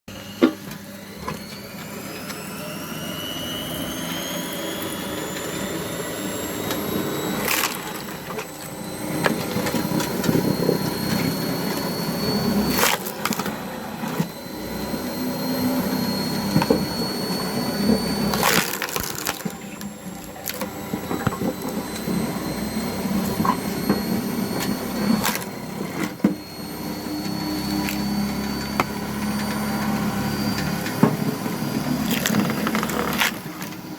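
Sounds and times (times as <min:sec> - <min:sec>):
electric motor whining: 0:00.1 - 0:33.9
wood splitting cracks: 0:07.4 - 0:08.5, 0:12.7 - 0:13.5, 0:18.3 - 0:19.8, 0:32.1 - 0:33.7
wood creaking and crunching: 0:17.9 - 0:22.1, 0:30.8 - 0:33.7.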